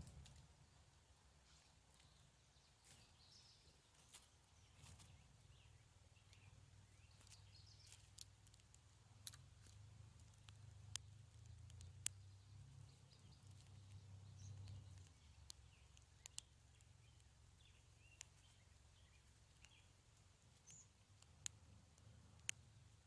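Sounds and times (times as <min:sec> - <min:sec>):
faint low hum: 0:00.0 - 0:23.0
faint sharp clicks: 0:06.2 - 0:23.0.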